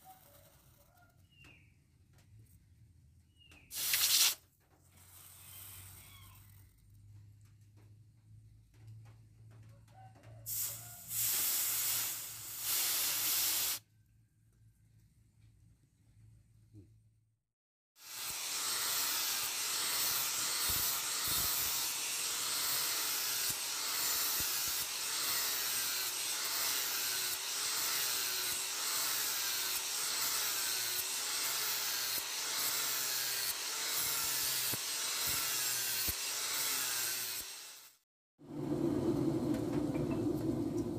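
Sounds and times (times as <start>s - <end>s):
steel blade being ground: 18.0s - 38.0s.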